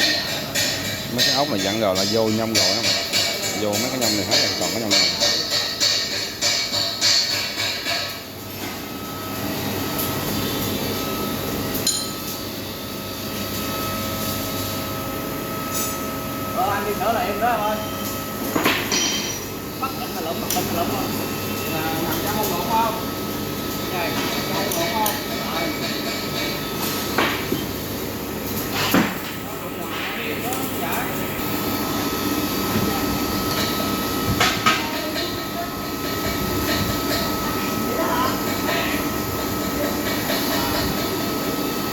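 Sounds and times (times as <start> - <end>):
sharp metallic knocks: 0.0 - 8.2.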